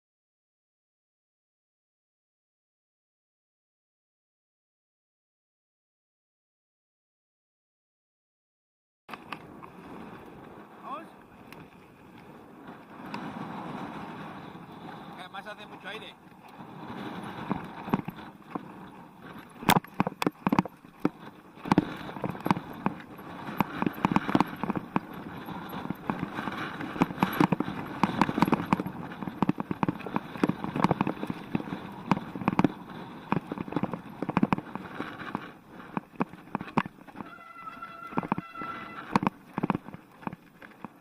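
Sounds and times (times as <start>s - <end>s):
bike tyre and wind rush: 9.1s - 41.0s
bike knocks and rattles: 17.2s - 41.0s.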